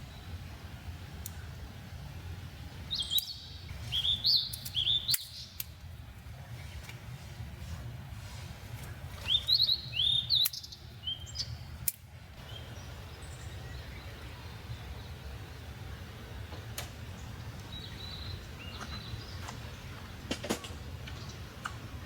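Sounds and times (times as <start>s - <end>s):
low outdoor rumble: 0.0s - 22.0s
bird chirping: 2.7s - 5.7s, 8.8s - 21.9s.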